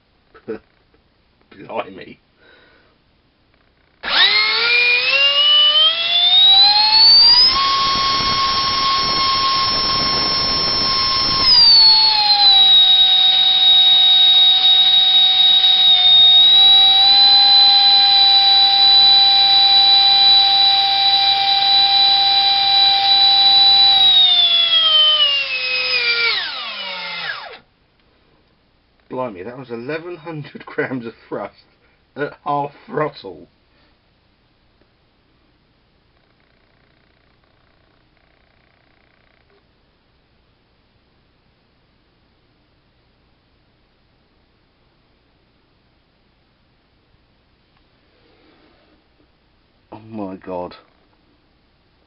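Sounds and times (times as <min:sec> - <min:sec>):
electric ducted fan whine: 0:04.0 - 0:31.8.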